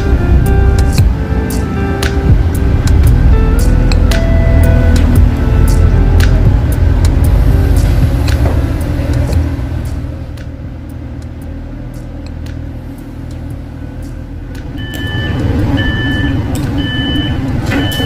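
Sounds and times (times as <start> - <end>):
train running rumble: 0.0 - 18.0
door signal short beeps: 14.8 - 18.0.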